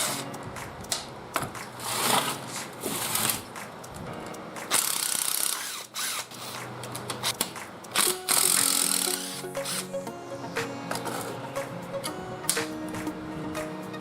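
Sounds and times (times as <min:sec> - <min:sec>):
ratcheting tool: 0:04.7 - 0:09.9.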